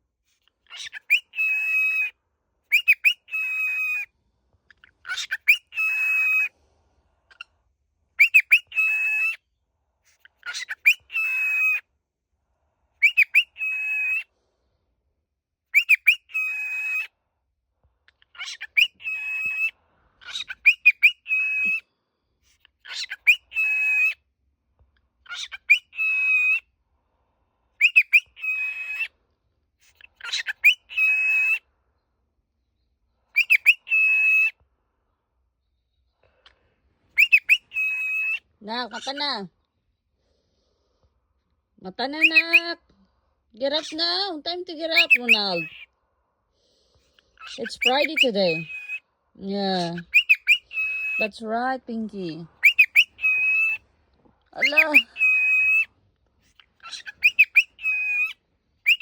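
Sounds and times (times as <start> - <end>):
cockatiel calling: 0.6 - 2.1, 2.7 - 4.1, 4.7 - 6.5, 8.2 - 9.4, 10.2 - 11.8, 13.0 - 14.3, 15.7 - 17.1, 18.2 - 21.8, 22.8 - 24.2, 25.3 - 26.7, 27.8 - 29.1, 29.8 - 31.6, 33.3 - 34.6, 37.1 - 39.4, 42.1 - 42.8, 43.7 - 45.9, 47.2 - 49.0, 49.6 - 51.4, 52.2 - 53.8, 54.6 - 55.9, 56.5 - 59.0.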